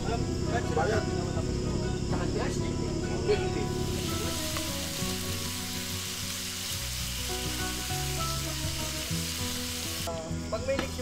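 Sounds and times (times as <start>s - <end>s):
meat sizzling in a pan: 3.8s - 10.2s.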